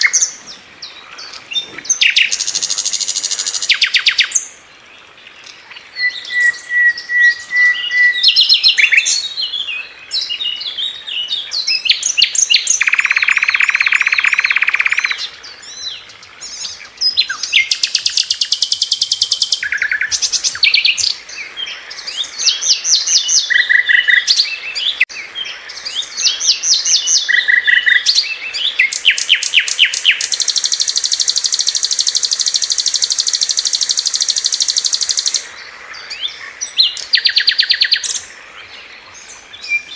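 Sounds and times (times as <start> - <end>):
flycatcher singing: 11.6 - 15.2, 16.4 - 25.1, 25.8 - 35.5, 36.1 - 38.3.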